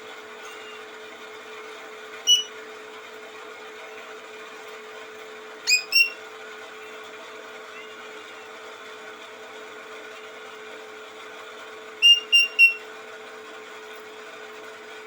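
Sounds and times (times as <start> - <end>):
songbird chirps: 2.3 - 2.5, 5.7 - 6.2.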